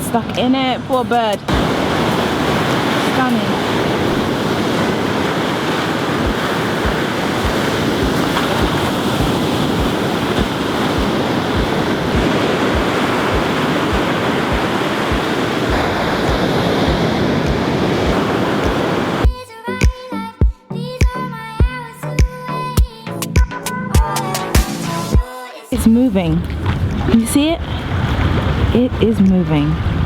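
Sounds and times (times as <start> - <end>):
ocean surf washing ashore: 0.0 - 19.3, 25.8 - 30.0
wind on microphone: 0.0 - 19.3, 25.8 - 30.0.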